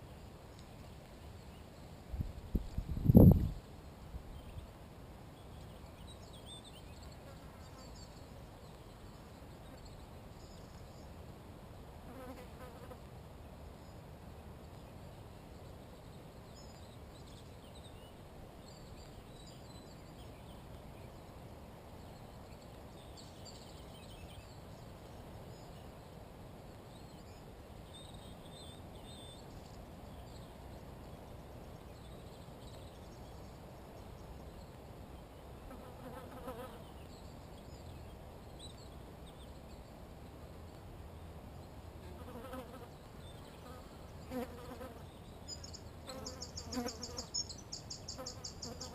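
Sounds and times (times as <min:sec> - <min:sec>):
insect buzzing close by: 0:35.7 - 0:36.9, 0:42.0 - 0:43.0, 0:43.6 - 0:45.1, 0:46.0 - 0:48.9
insects buzzing: 0:43.6 - 0:48.9.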